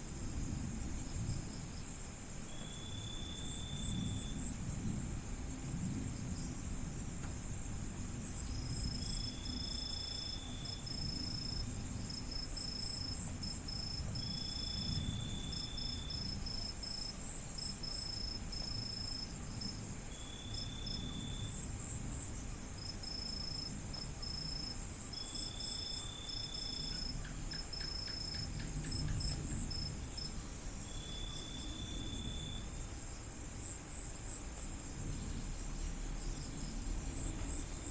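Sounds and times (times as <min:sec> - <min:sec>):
cricket high trill: 0:02.5 - 0:04.4, 0:23.0 - 0:32.8
cricket lower trill: 0:02.5 - 0:04.5, 0:08.4 - 0:21.6, 0:22.8 - 0:33.0.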